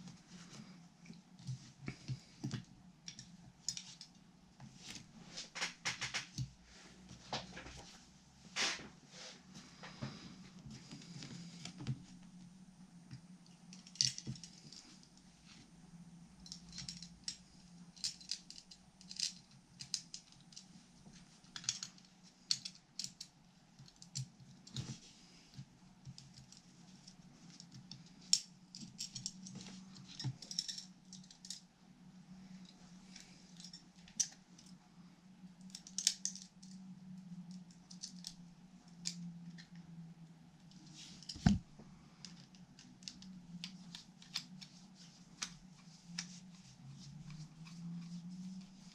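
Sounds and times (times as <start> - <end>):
steady low hum: 0.0 - 48.9
tools and parts clicking and rattling: 2.4 - 4.2, 13.7 - 15.2, 16.4 - 25.0, 26.1 - 31.7, 32.6 - 34.8, 35.6 - 36.9, 37.5 - 39.7.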